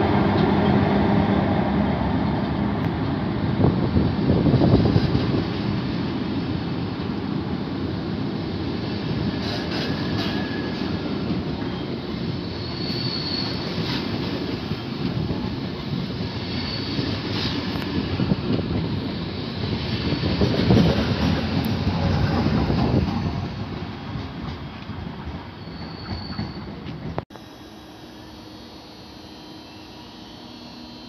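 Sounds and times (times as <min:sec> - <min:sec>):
train wheels rumbling on rail: 0:00.0 - 0:27.3
high-pitched wheel squeals: 0:11.7 - 0:14.0, 0:16.4 - 0:17.5, 0:25.6 - 0:26.8.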